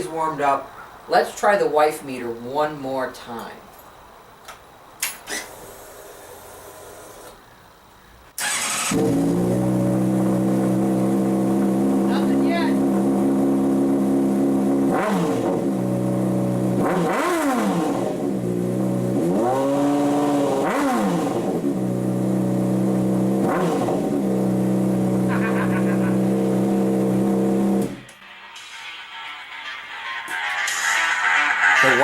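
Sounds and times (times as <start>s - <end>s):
motorcycle engine idling and revving: 8.8s - 28.1s.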